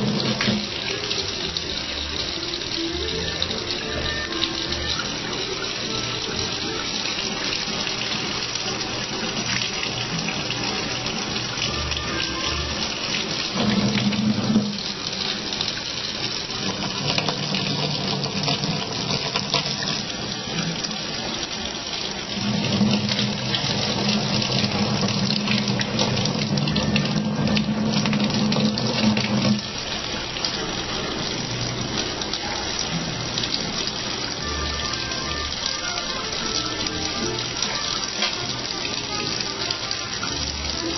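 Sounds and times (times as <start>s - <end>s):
background music: 0.0s - 21.8s, 22.5s - 40.9s
tap running into a sink: 0.0s - 40.9s.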